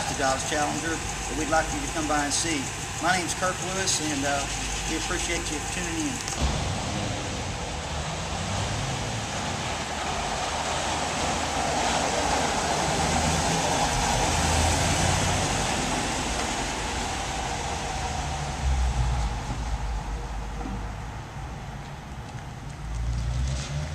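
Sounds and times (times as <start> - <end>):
road vehicle passing: 0.0 - 23.9.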